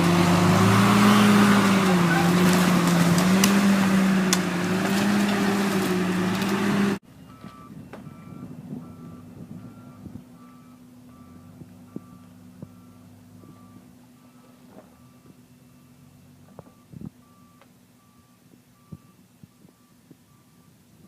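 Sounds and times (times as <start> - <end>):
diesel engine running: 0.0 - 21.0
faint engine hum: 0.0 - 21.0
backup alarm beeping: 7.2 - 20.8.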